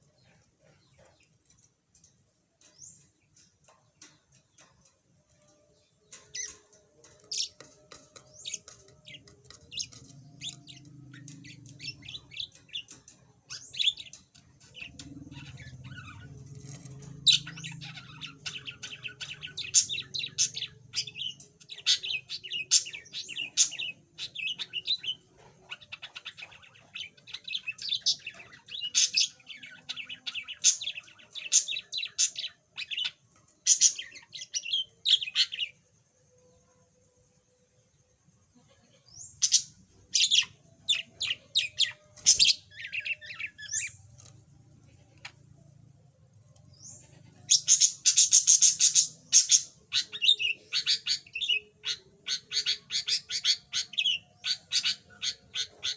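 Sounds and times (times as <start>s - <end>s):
budgerigar chirping: 47.5s - 55.9s.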